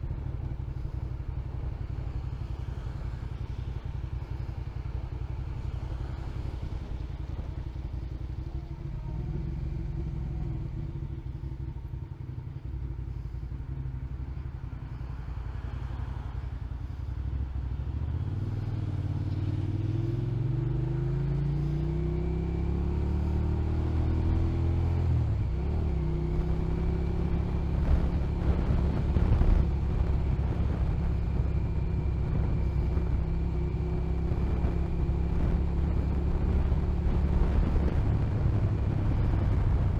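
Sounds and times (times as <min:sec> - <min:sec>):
road and wind rumble: 0:00.0 - 0:39.9
motorcycle engine: 0:21.6 - 0:39.9.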